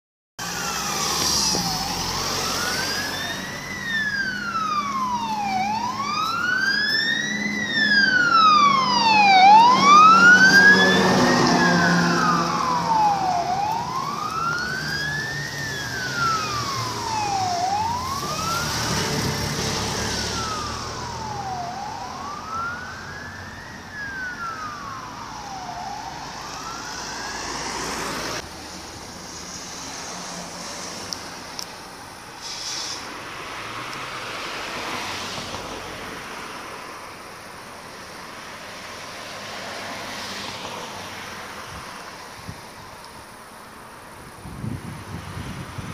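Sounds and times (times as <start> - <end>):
fire engine siren wailing: 0.4 - 28.4
truck engine: 0.4 - 37.1.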